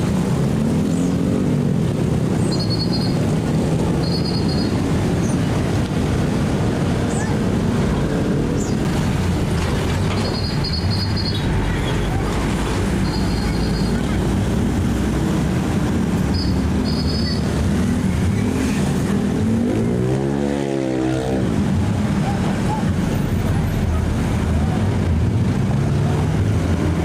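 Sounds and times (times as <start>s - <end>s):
truck engines rumbling: 0.0s - 27.0s
engine revving: 17.8s - 21.6s.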